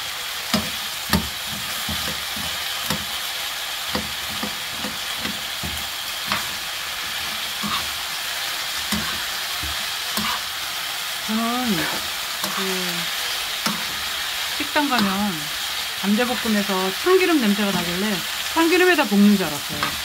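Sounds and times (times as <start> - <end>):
vegetables sizzling in oil: 0.0 - 20.0
spoon scraping against pan: 0.5 - 3.3, 3.9 - 10.7, 11.8 - 16.6.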